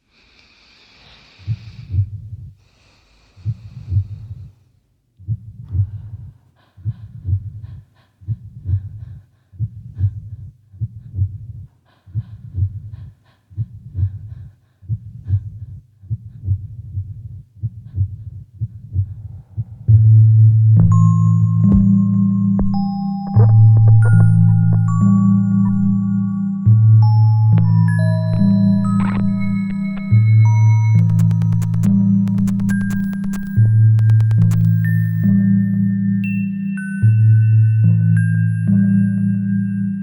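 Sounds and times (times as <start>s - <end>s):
hiss: 0.0s - 1.7s
heartbeat: 1.4s - 2.6s, 3.4s - 4.6s, 5.2s - 35.4s.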